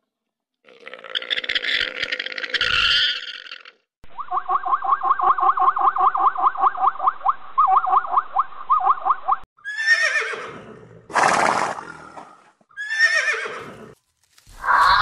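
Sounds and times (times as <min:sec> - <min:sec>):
horse whinnying: 0:09.6 - 0:14.0
horse snorting: 0:10.6 - 0:12.5.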